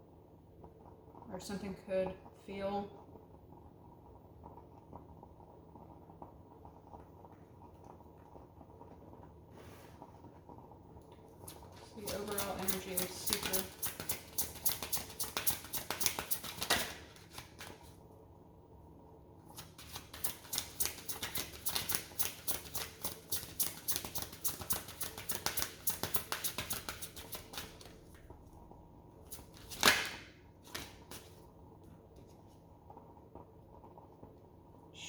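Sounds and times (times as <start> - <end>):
cards being shuffled: 11.5 - 17.9, 19.5 - 28.0, 29.3 - 31.4
card slap: 12.1 - 17.8, 19.6 - 27.9, 29.3 - 31.3.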